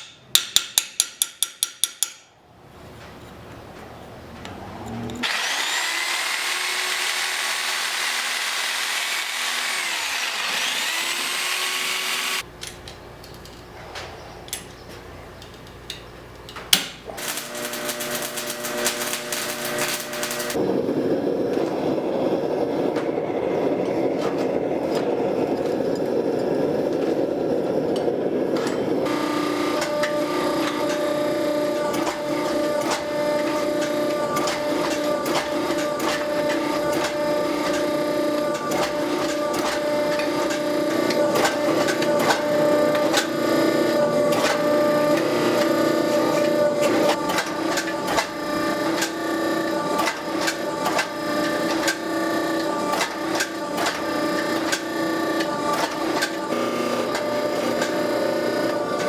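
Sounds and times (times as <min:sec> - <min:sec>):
machine hum: 0:04.0 - 0:59.0
steady rushing noise: 0:19.0 - 0:29.1.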